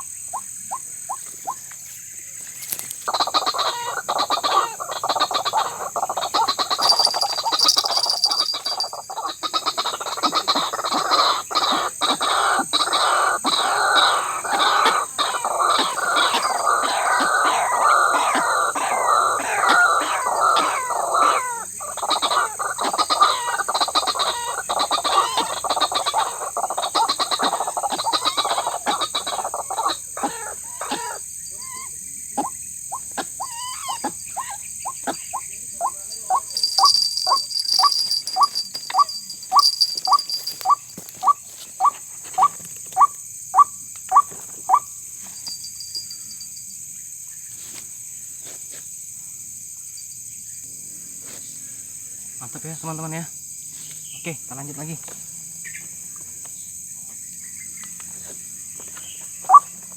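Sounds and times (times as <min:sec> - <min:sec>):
high insect hum: 0:00.0 - 0:59.9
waterhen harsh croaks: 0:03.0 - 0:44.9
repeated bird notes: 0:06.6 - 0:10.0, 0:34.0 - 0:40.9.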